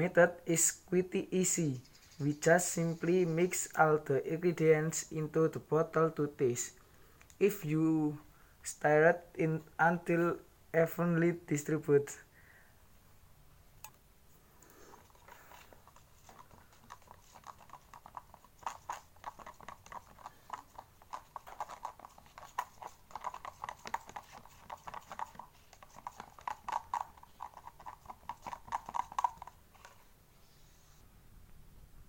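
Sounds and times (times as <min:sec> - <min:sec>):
plastic bottle knocking and clicking: 0:16.3 - 0:29.6.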